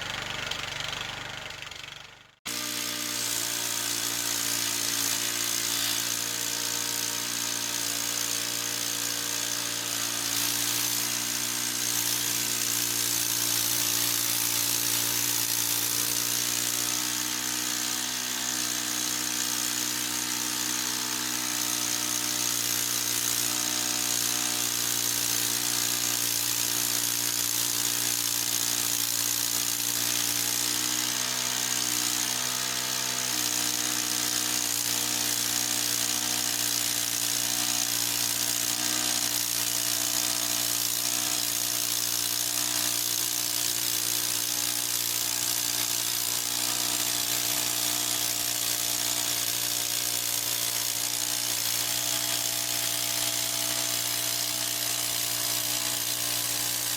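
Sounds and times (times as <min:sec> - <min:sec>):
band sawmill engine humming: 0:00.0 - 0:04.2.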